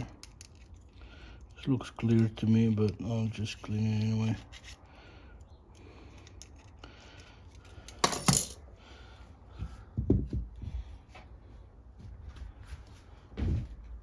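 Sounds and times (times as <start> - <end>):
metal parts clinking and tapping: 7.6 - 8.6.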